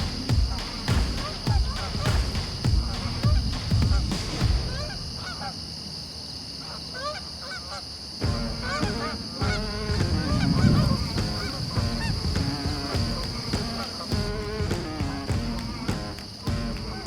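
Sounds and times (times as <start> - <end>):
geese honking: 4.6 - 5.6, 6.6 - 17.0.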